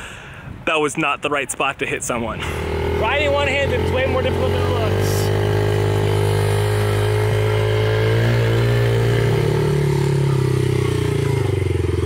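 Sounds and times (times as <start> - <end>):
dirt bike engine running: 2.4 - 12.0.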